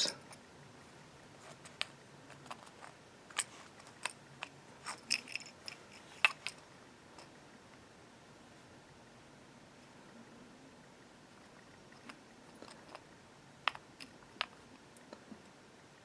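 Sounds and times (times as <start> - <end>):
metal parts clicking: 1.4 - 6.6.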